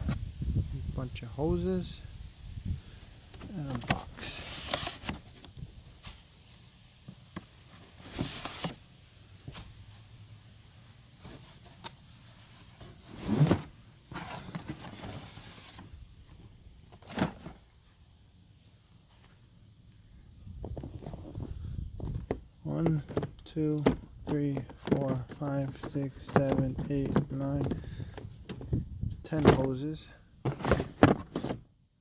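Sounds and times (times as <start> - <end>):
cardboard packaging handled: 3.3 - 10.0, 11.2 - 18.0, 20.6 - 28.8, 30.4 - 31.7.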